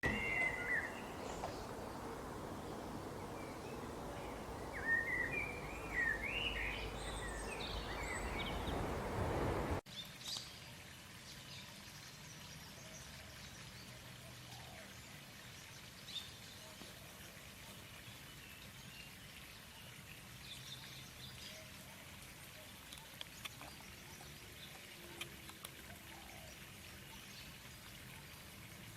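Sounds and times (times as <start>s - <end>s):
canary singing: 0.0s - 9.8s
steady hiss: 0.0s - 9.8s.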